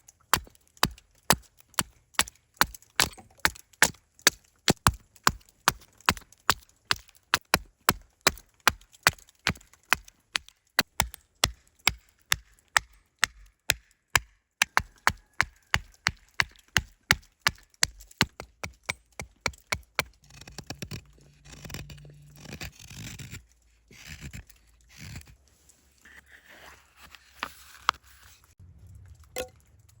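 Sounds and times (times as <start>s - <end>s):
blade chopping wood: 0.3s - 22.0s.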